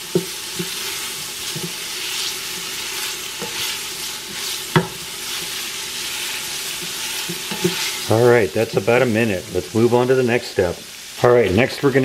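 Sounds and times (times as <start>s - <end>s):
wooden spoon scraping pot: 0.0s - 8.1s
onions sizzling in oil: 0.0s - 12.0s
spoon knocking against pot: 4.7s - 5.0s.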